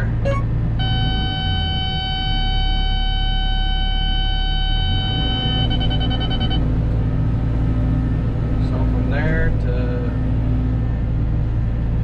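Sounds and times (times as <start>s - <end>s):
diesel engine running: 0.0s - 12.0s
electronic beeping tone: 0.2s - 6.7s.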